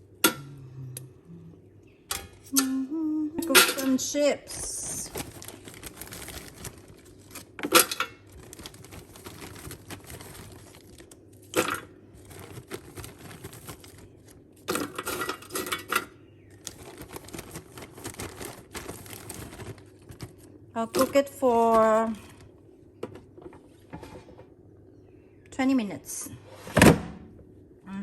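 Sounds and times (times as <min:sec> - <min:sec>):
low steady hum: 0:00.0 - 0:28.0
chips clattering in air fryer: 0:03.5 - 0:22.4.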